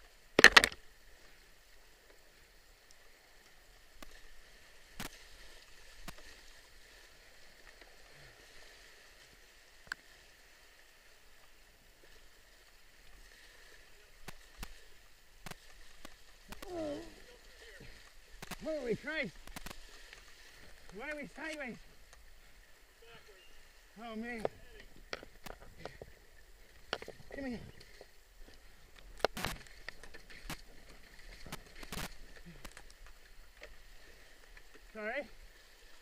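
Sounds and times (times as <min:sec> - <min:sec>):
rushing river: 0:00.0 - 0:36.0
canoe knocks: 0:00.4 - 0:00.8.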